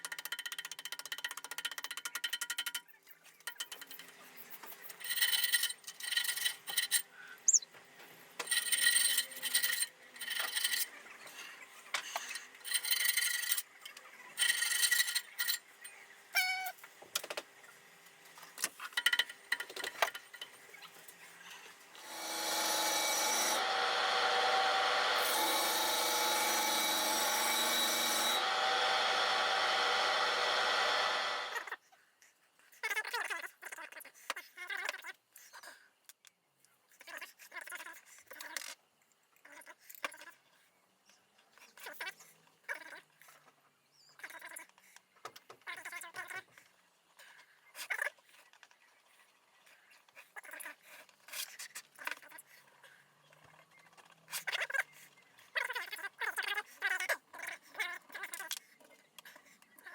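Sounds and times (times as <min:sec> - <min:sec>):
hand tool scraping and sawing: 0:08.4 - 0:11.0, 0:21.5 - 0:31.7
power tool running: 0:21.9 - 0:31.7.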